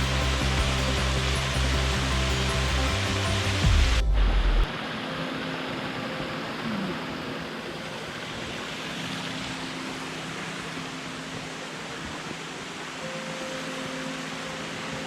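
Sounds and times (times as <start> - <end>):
steady rushing noise: 0.0 - 15.0
faint held musical tones: 4.7 - 15.0.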